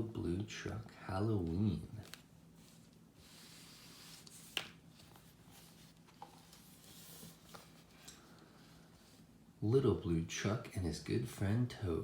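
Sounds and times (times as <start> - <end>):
book pages turning: 1.5 - 8.1.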